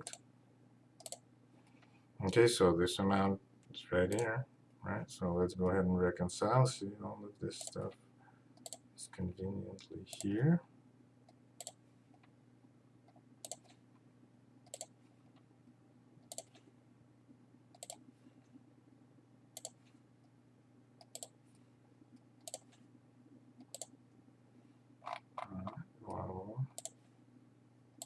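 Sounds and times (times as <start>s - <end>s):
computer mouse clicking: 0.0s - 0.2s, 1.0s - 2.4s, 7.6s - 7.8s, 8.6s - 8.8s, 11.3s - 12.3s, 13.1s - 13.8s, 14.6s - 15.0s, 16.2s - 16.7s, 17.7s - 18.0s, 19.6s - 19.9s, 21.0s - 21.4s, 22.1s - 22.8s, 23.6s - 24.0s, 25.0s - 27.0s
faint low hum: 0.0s - 28.0s.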